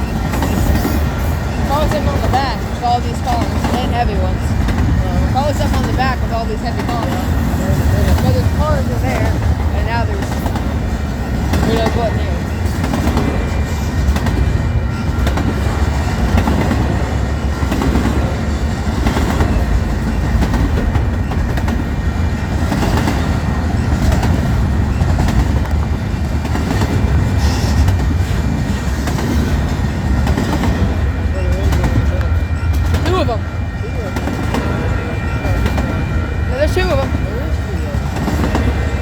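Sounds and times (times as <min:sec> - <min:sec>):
wheels clattering over rails: 0:00.0 - 0:33.2
freight train cars rumbling: 0:00.0 - 0:39.0.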